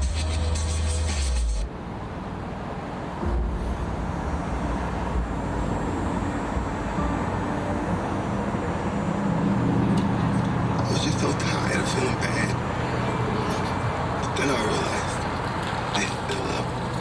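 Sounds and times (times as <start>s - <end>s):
subwoofer playing deep bass: 3.1s - 9.8s.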